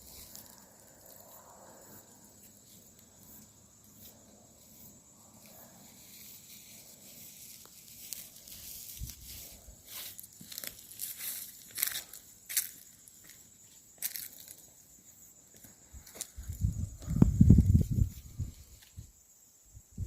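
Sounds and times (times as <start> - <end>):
background hiss: 0.0 - 20.0
high insect drone: 0.0 - 20.0.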